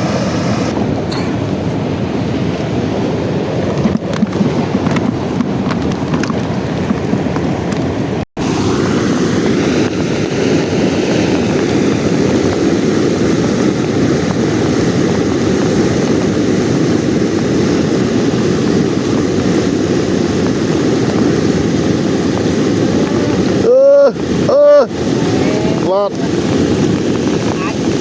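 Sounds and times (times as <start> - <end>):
boat motor droning: 0.0 - 28.0.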